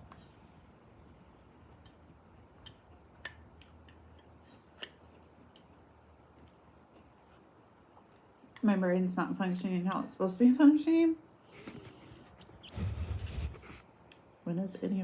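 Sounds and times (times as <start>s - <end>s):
faint low background hum: 0.0s - 15.0s.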